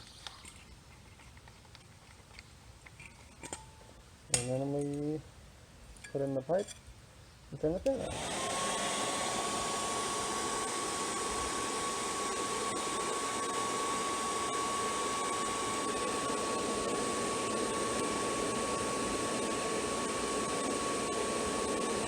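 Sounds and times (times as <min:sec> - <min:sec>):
hair dryer air rush: 0:07.9 - 0:22.0
high motor whine: 0:08.0 - 0:22.0.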